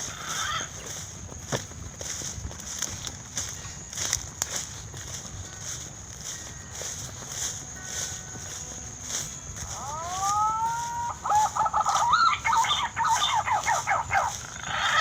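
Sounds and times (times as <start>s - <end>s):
bird calling and warbling: 0.0s - 1.0s, 9.6s - 15.0s.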